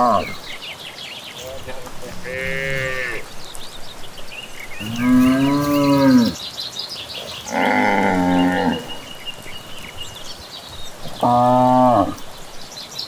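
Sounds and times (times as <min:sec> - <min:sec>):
cattle mooing: 0:00.0 - 0:00.5, 0:01.9 - 0:03.4, 0:04.8 - 0:06.4, 0:07.4 - 0:09.2, 0:11.0 - 0:12.4
birds chirping: 0:00.0 - 0:13.0.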